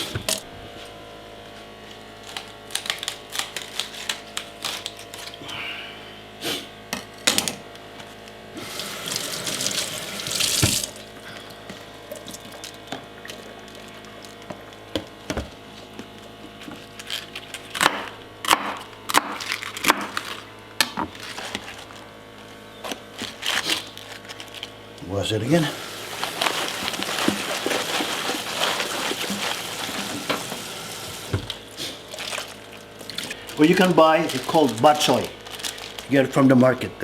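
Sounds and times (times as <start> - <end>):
tap water running into sink: 8.6 - 11.0, 25.7 - 31.5
knocks and clatters in sink: 26.6 - 31.5.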